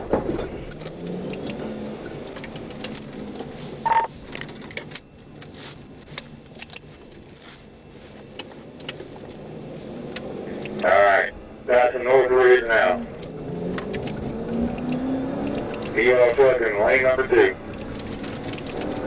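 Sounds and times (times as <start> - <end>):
car road and engine noise: 0.0 - 19.0
short beep: 3.8 - 4.1.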